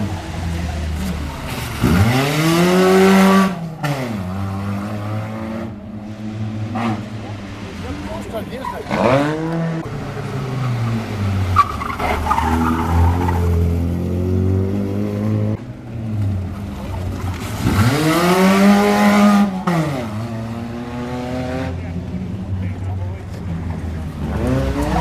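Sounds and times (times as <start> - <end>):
engine revving: 0.0 - 7.7, 8.8 - 15.6, 17.4 - 22.0, 24.1 - 25.0
race car engines running: 0.0 - 25.0.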